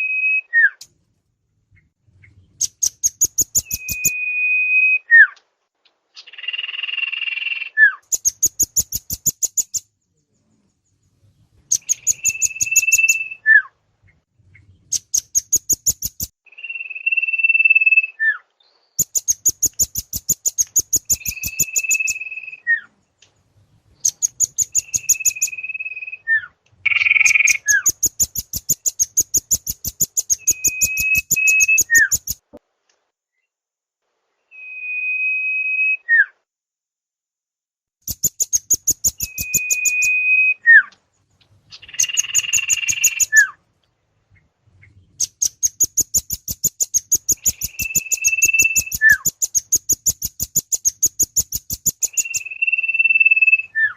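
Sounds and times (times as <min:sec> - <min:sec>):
high sharp bird chips: 0:02.6 - 0:04.2, 0:08.0 - 0:09.9, 0:11.7 - 0:13.4, 0:15.0 - 0:16.4, 0:19.0 - 0:22.4, 0:24.0 - 0:26.0, 0:26.9 - 0:32.4, 0:38.0 - 0:40.2, 0:41.7 - 0:43.5, 0:45.2 - 0:53.7
whistled bird note: 0:03.1 - 0:05.4, 0:11.8 - 0:13.7, 0:28.8 - 0:32.3, 0:34.5 - 0:36.4, 0:38.5 - 0:40.9, 0:47.1 - 0:49.8, 0:52.0 - 0:53.9.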